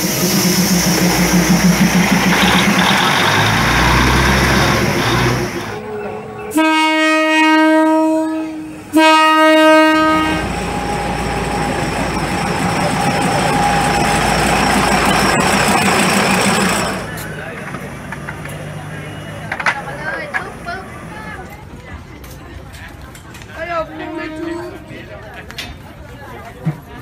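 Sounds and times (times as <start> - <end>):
diesel railcar rumbling past: 0.0 - 26.1
train horn blast: 3.3 - 12.1, 23.8 - 25.0.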